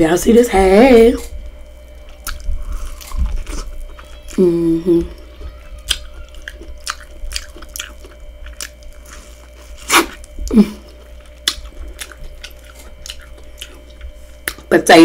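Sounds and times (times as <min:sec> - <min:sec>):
wet chewing and mouth clicks: 0:01.4 - 0:04.4, 0:05.1 - 0:14.7
loud bite: 0:09.8 - 0:10.4.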